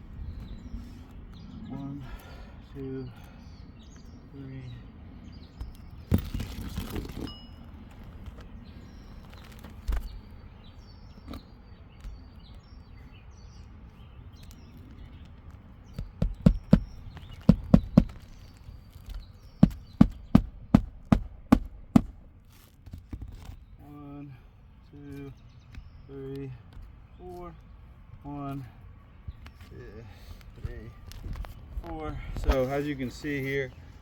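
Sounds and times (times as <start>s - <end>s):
birds chirping: 0.0s - 34.0s
knocks on shingle roof: 15.9s - 22.3s.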